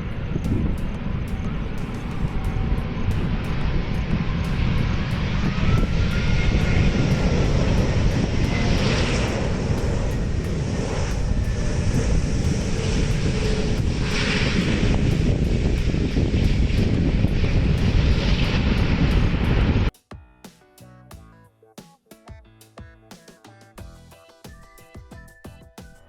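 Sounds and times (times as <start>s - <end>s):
jet engines rumbling: 0.0s - 19.9s.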